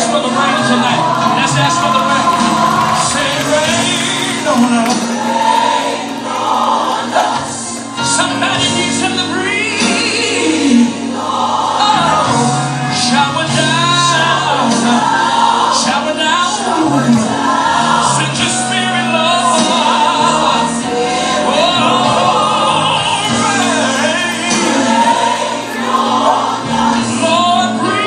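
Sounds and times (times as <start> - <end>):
choir singing: 0.0 - 28.0
instrumental accompaniment: 0.5 - 11.7.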